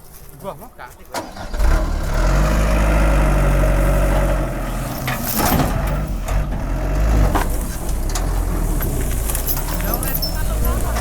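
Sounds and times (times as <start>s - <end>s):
engine idling: 1.2s - 11.0s.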